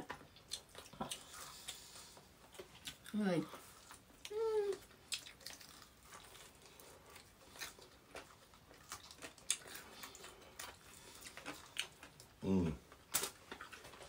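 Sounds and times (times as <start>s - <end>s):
chewing chicken wings: 4.8s - 14.0s.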